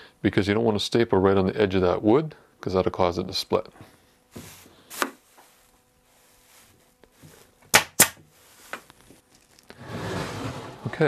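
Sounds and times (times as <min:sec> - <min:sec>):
pneumatic stapler firing: 0:07.7 - 0:08.2.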